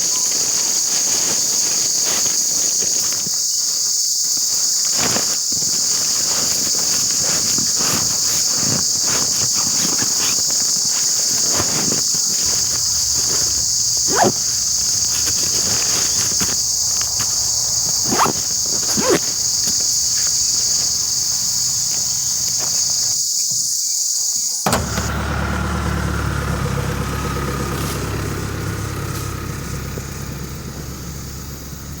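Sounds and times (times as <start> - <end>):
short insect chirps: 0.0 - 24.6
insects chorus: 0.0 - 32.0
vehicle engine humming: 4.3 - 23.0, 24.7 - 32.0.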